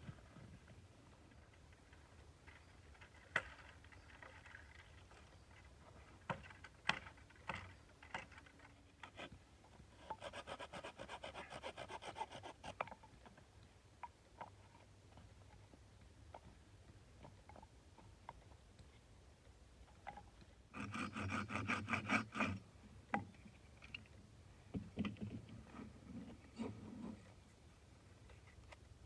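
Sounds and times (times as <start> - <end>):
rasping strokes on wood: 10.0 - 12.8, 20.8 - 22.6.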